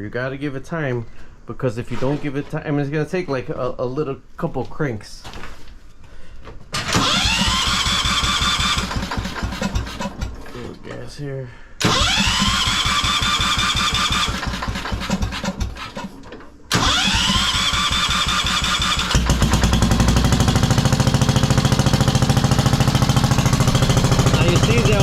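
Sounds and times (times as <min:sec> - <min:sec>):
small engine running: 0:06.8 - 0:10.2, 0:11.8 - 0:16.0, 0:16.7 - 0:25.0
engine starter cranking: 0:06.8 - 0:10.5, 0:11.8 - 0:25.0.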